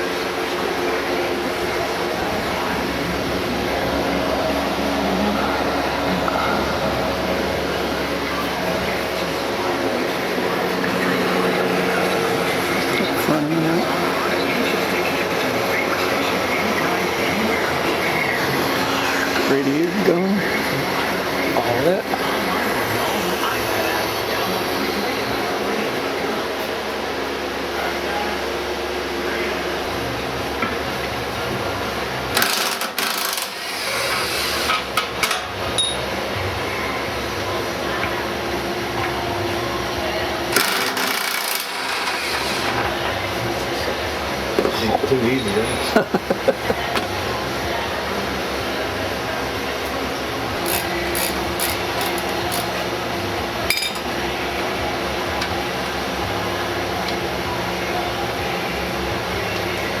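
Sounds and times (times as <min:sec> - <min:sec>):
steady shop hum: 0:00.0 - 1:00.0.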